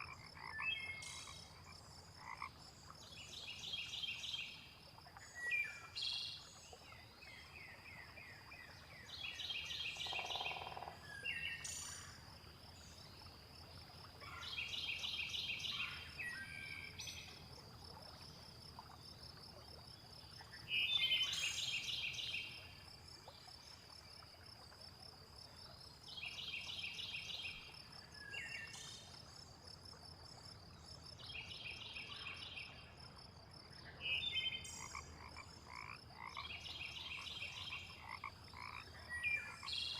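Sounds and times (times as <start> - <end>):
frogs calling: 0.0 - 2.6, 9.7 - 12.2, 33.8 - 39.9.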